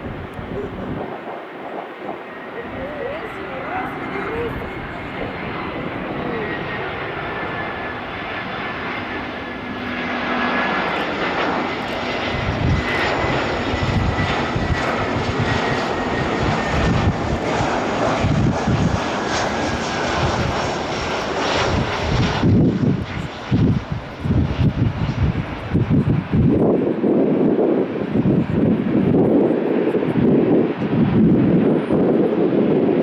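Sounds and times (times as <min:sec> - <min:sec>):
high engine whine: 0:00.0 - 0:17.1
jet engines at takeoff: 0:00.0 - 0:33.0.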